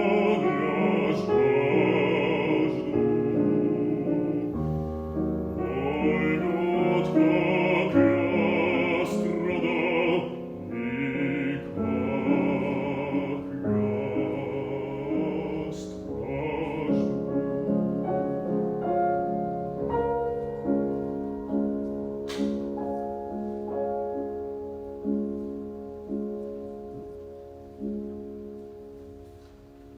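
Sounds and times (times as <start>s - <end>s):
piano accompaniment: 0.0s - 29.9s
bass voice singing: 5.6s - 17.9s.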